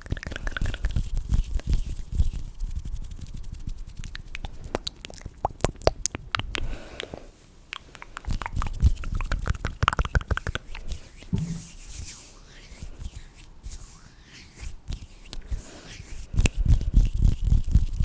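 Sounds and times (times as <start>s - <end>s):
low rubbing thumps: 11.3s - 12.3s.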